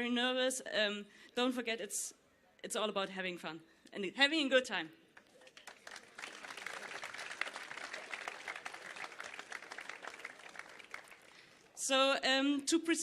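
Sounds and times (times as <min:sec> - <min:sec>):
audience applauding: 0:05.4 - 0:11.8.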